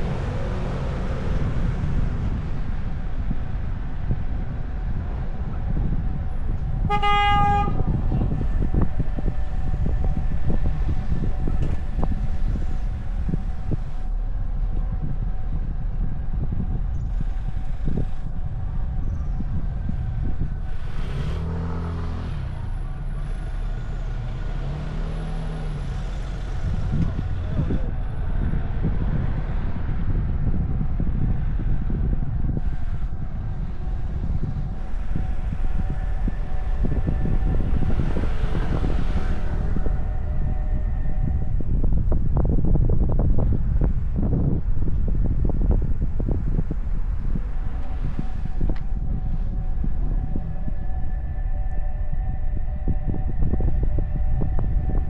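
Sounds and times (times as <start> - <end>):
car engine and road rumble: 0.0 - 55.0
passing traffic: 0.0 - 55.0
vehicle horn toot: 6.8 - 8.4.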